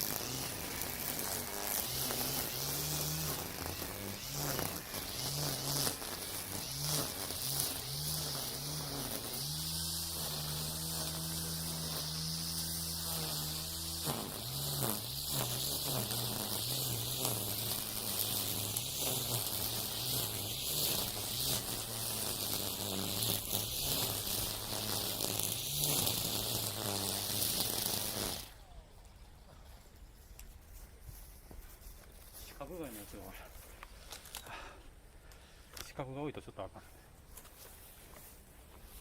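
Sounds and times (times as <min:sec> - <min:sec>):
string trimmer running: 0:00.0 - 0:28.9
trimmer line cutting weeds: 0:00.0 - 0:28.9.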